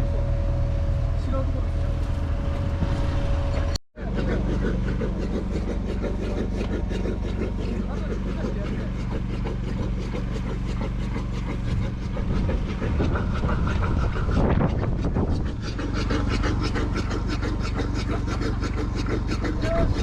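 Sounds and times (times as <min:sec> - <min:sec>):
excavator engine clattering: 0:00.0 - 0:20.0.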